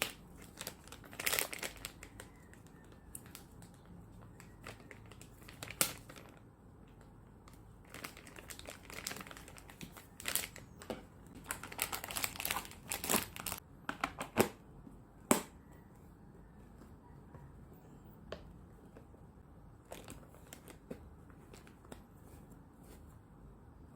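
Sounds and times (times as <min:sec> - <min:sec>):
packaging crinkling and rustling: 0:00.0 - 0:13.6, 0:19.8 - 0:22.2.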